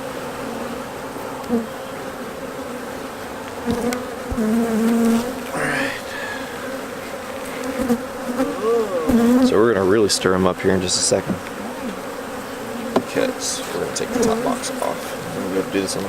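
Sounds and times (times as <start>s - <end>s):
honey bees buzzing: 0.0s - 16.0s
light knocks: 12.9s - 13.2s.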